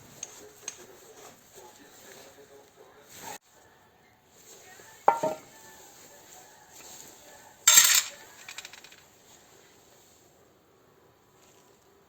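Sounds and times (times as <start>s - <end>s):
metal tools clinking: 5.1s - 5.5s, 7.7s - 9.0s.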